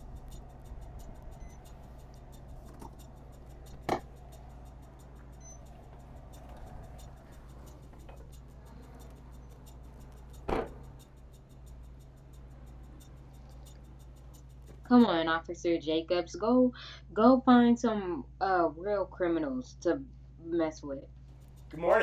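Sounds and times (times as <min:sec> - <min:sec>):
faint ticking beat: 0:00.0 - 0:16.5, 0:21.3 - 0:22.0
quiet background music: 0:00.0 - 0:22.0.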